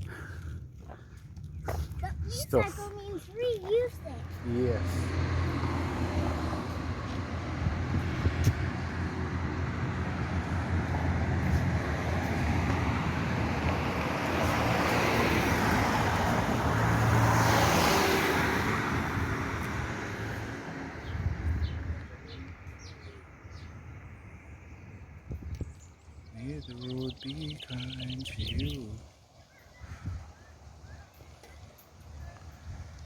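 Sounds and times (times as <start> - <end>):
road traffic: 0.0 - 33.0
vehicle passing close: 3.9 - 24.7.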